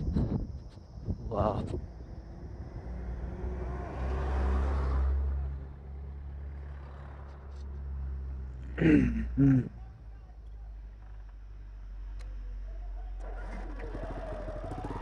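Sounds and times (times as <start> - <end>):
motorcycle engine running: 13.2 - 15.0.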